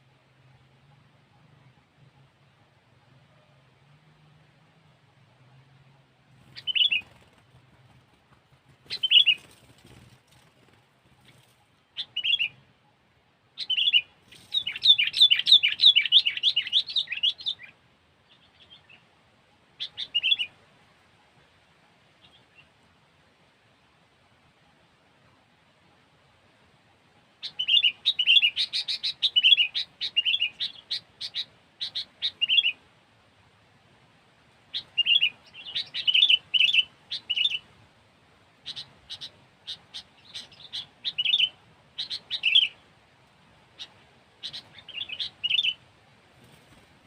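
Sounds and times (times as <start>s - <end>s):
bird singing bright chirps: 6.5s - 7.3s, 12.0s - 12.6s, 13.6s - 17.7s, 34.8s - 37.6s, 38.7s - 42.8s, 43.8s - 45.8s.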